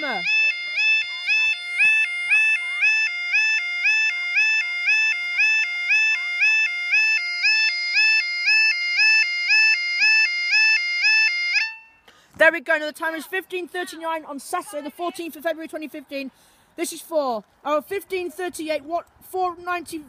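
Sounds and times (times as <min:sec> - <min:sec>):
level crossing alarm warbling: 0:00.0 - 0:11.8.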